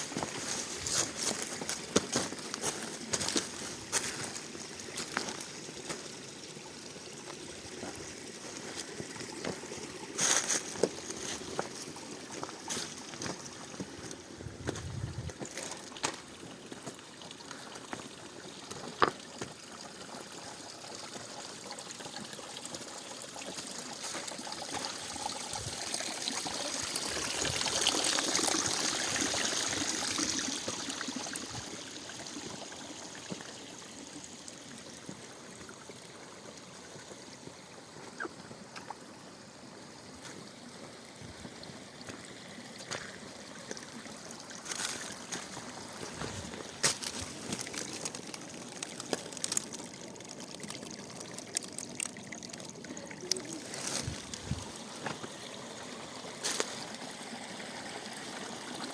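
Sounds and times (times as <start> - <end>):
mountain stream trickling: 0.0 - 58.9.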